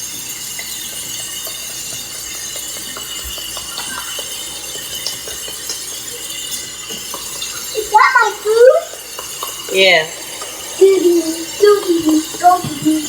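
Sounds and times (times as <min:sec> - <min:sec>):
light clicks and clinks: 0:00.0 - 0:07.8
steady hiss: 0:01.0 - 0:13.0.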